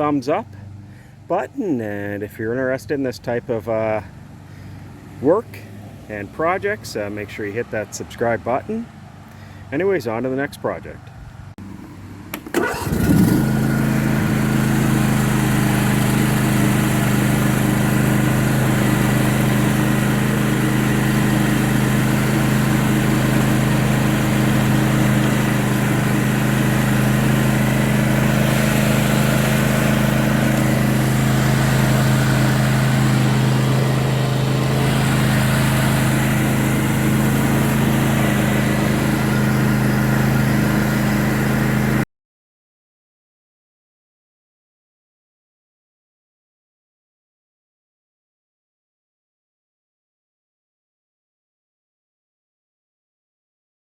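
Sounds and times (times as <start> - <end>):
lawn tractor engine running: 0.0 - 42.0.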